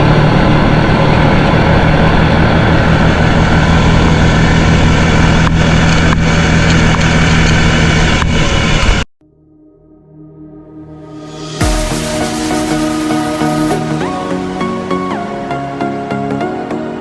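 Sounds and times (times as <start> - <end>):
engine running steadily: 0.0 - 9.1.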